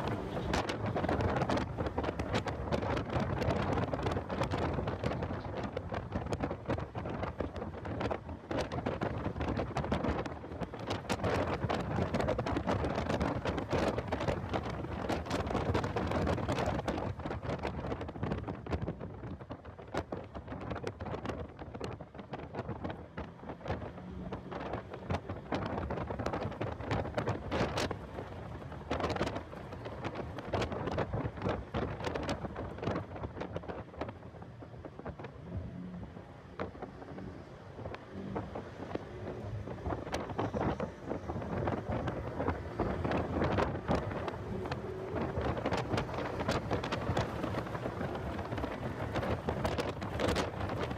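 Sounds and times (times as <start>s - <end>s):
faint car engine: 0.0s - 6.4s
road noise: 0.0s - 50.9s
wind buffeting microphone: 0.0s - 50.9s.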